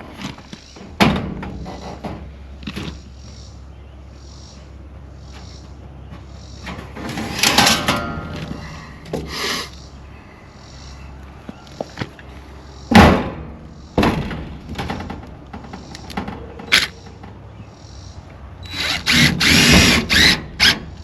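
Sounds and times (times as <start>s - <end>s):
rattling scraping sounds: 6.6s - 9.7s.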